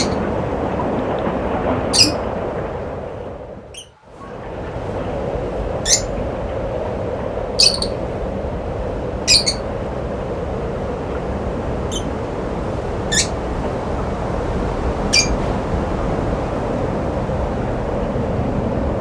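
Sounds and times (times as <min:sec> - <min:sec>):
bird chirping: 0:00.0 - 0:00.2, 0:01.9 - 0:02.3, 0:05.8 - 0:06.2, 0:07.6 - 0:08.0, 0:09.3 - 0:09.7, 0:11.9 - 0:12.2, 0:13.1 - 0:13.4, 0:15.1 - 0:15.4.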